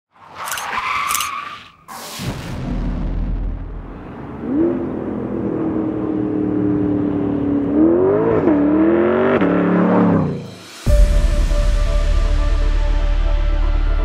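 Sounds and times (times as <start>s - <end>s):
sports car engine accelerating: 4.0s - 10.6s.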